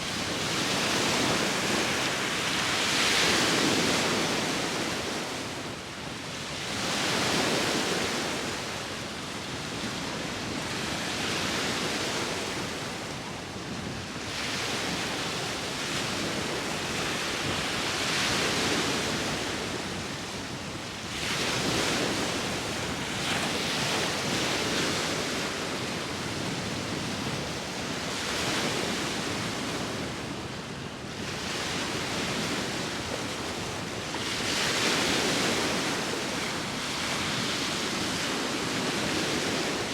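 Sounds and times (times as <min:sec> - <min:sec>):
sea waves breaking: 0:14.4 - 0:30.5.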